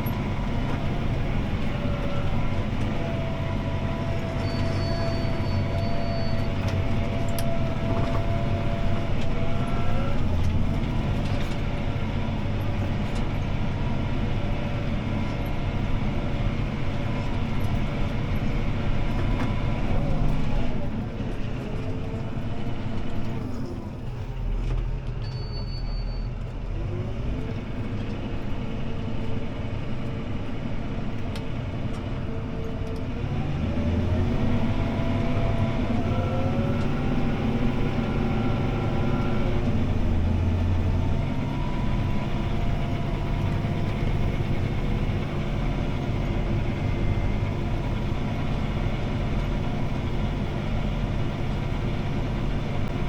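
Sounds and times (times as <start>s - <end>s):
tractor diesel engine from cab: 0.0s - 53.0s.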